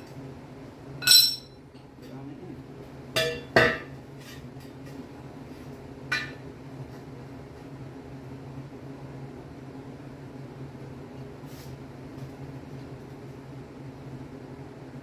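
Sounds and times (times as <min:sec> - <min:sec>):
steady low hum: 0:00.0 - 0:03.5
metal clanks: 0:01.0 - 0:01.5.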